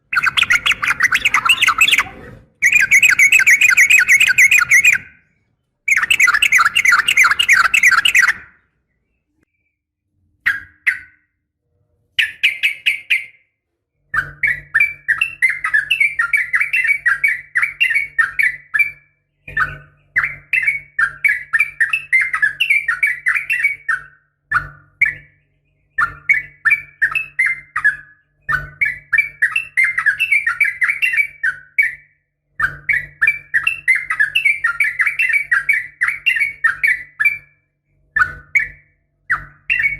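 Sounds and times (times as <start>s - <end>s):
bird chattering calls: 0.0s - 5.2s, 5.9s - 8.6s.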